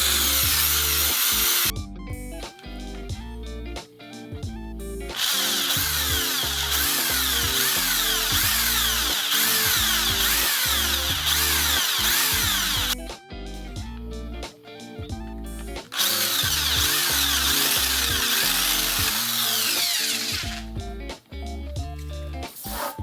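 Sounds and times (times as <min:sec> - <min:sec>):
power drill boring into metal: 0:00.0 - 0:01.7, 0:05.1 - 0:13.0, 0:15.9 - 0:20.7
background music: 0:00.0 - 0:23.0.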